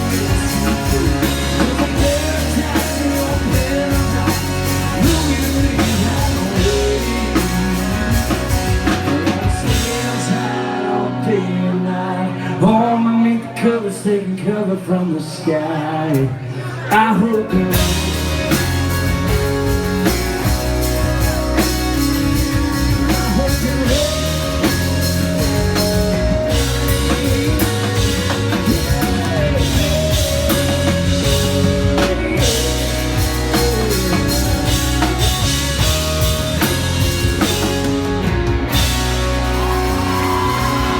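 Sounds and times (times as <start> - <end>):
rock band instrumental: 0.0 - 13.5, 16.1 - 40.9
sliding lead guitar line: 0.0 - 13.7, 16.5 - 40.9.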